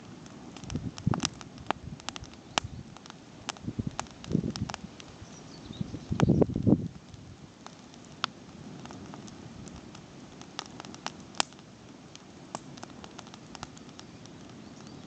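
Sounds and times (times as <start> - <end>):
campfire crackling: 0.0 - 15.0
low steady hiss: 0.0 - 15.0.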